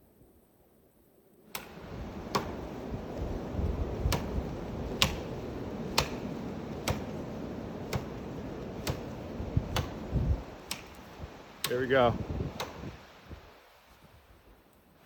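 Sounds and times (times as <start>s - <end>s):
axe chopping wood: 1.6s - 2.6s, 4.0s - 4.4s, 5.0s - 5.3s, 5.9s - 7.2s, 7.9s - 8.2s, 8.8s - 11.0s, 12.5s - 13.0s.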